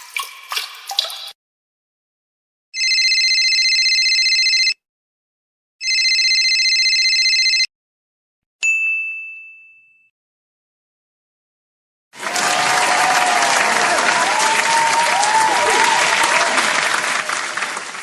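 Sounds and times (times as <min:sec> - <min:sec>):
telephone ringing: 0:02.8 - 0:04.8, 0:05.8 - 0:07.7
bright ding: 0:08.6 - 0:10.1.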